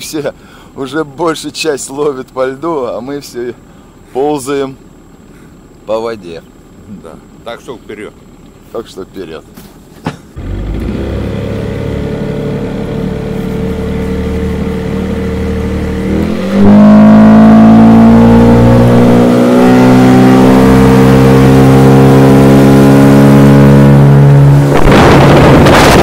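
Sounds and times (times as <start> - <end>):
outboard motor running: 10.4 - 16.1.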